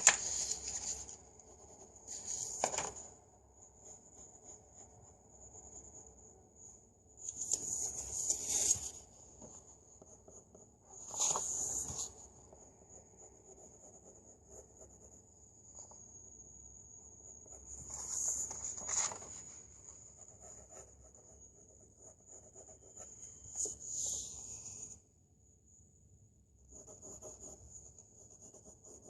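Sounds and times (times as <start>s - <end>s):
pencil scratching on paper: 7.5s - 16.0s, 17.1s - 25.0s, 26.7s - 29.0s.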